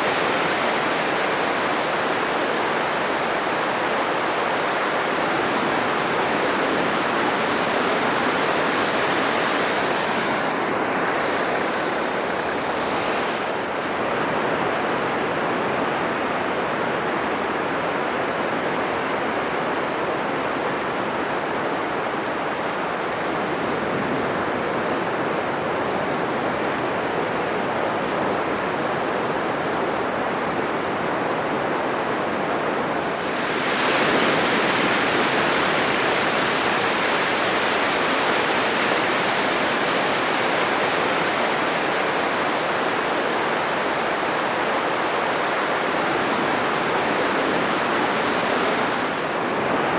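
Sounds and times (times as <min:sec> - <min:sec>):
big wave crashing: 0:00.0 - 0:14.2, 0:32.8 - 0:49.8
ocean surf breaking on beach: 0:00.0 - 0:49.9.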